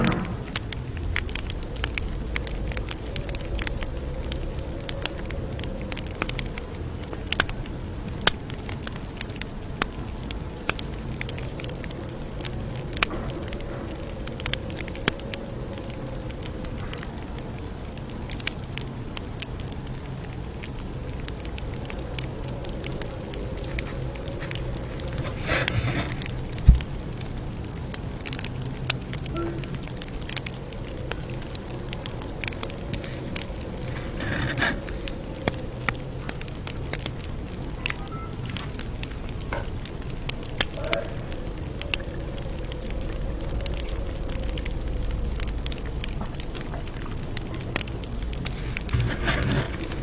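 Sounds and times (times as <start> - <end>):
campfire crackling: 0.0 - 50.0.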